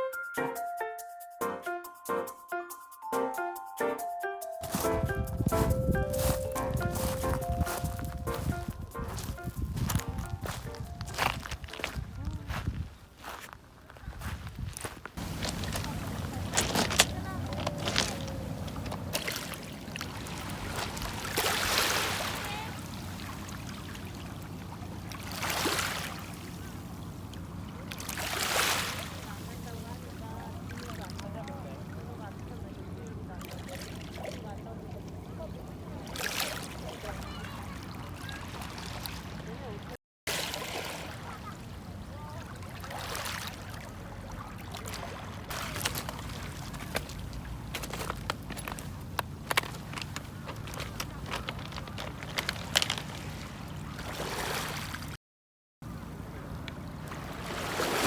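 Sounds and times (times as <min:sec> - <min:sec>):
low rumble: 0:15.2 - 0:21.4
steady low hum: 0:15.2 - 0:21.4
sea waves washing in: 0:15.2 - 0:48.1, 0:56.4 - 0:58.0.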